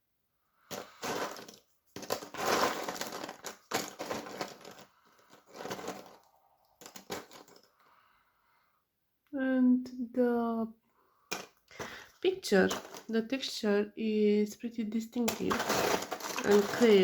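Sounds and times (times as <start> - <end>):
puzzle pieces rattling: 0.7 - 7.7, 11.3 - 13.2, 15.2 - 17.0.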